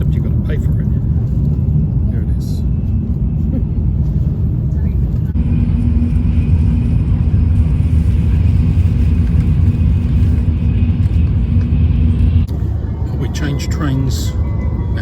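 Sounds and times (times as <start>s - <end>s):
train rumble: 0.0s - 15.0s
faint high whine: 5.2s - 15.0s.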